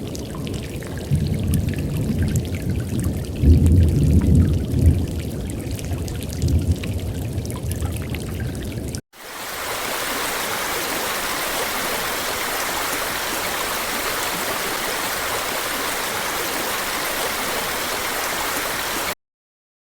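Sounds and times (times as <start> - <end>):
rushing water sound from speaker: 9.2 - 19.2.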